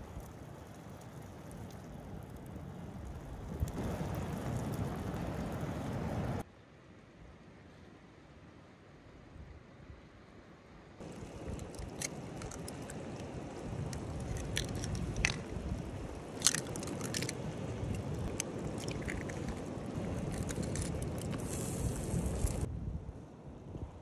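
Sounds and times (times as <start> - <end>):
food sizzling and bubbling in pan: 11.0 - 22.7
sharp pops and crackles: 11.0 - 22.7.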